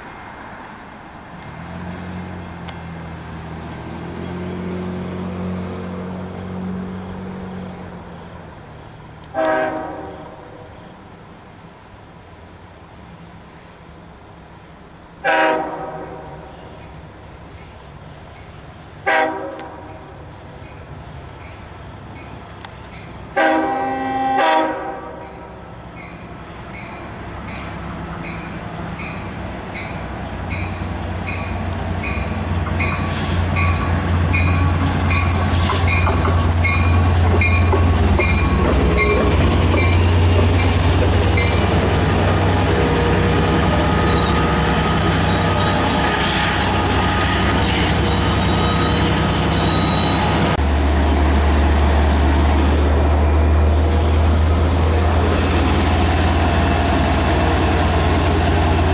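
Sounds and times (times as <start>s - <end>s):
diesel locomotive engine humming: 0.0s - 58.9s
train rumble: 0.0s - 58.9s
loud train horn blast: 9.3s - 10.7s, 15.2s - 16.5s, 19.0s - 20.1s, 23.4s - 25.5s.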